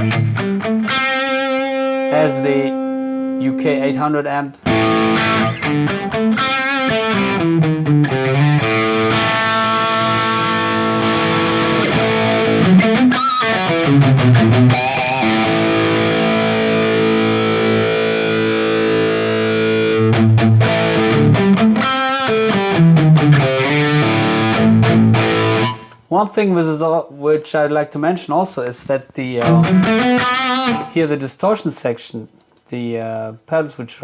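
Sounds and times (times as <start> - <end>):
distorted electric guitar: 0.0 - 3.8, 4.6 - 26.1, 29.4 - 31.0.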